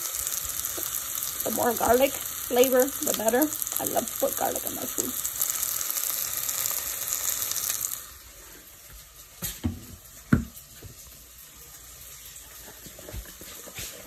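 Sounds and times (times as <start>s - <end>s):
onions sizzling in a pan: 0.0s - 14.0s.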